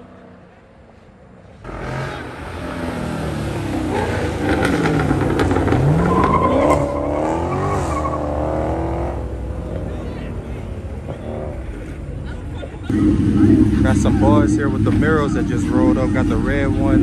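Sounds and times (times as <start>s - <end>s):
car engine revving hard: 1.6s - 10.0s, 12.9s - 17.0s
tyres squealing: 3.9s - 8.8s.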